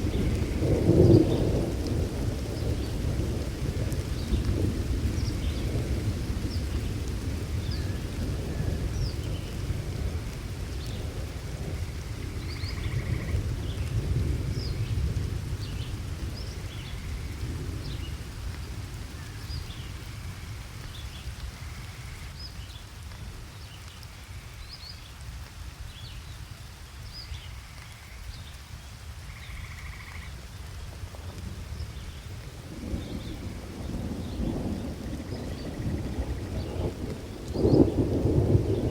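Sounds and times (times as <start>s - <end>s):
low rumble of thunder: 0.0s - 23.7s, 27.1s - 38.9s
steady rain: 0.0s - 38.9s.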